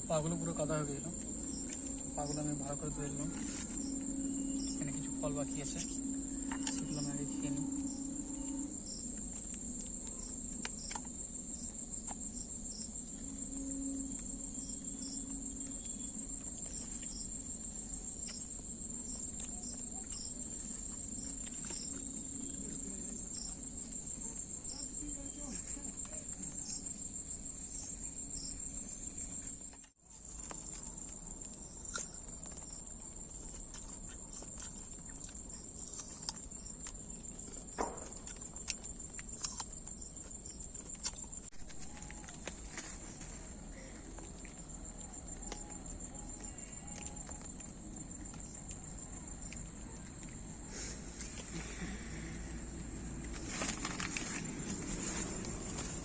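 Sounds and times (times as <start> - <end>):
faint repeating chirp: 0.0 - 9.0
insects chirring: 0.0 - 56.0.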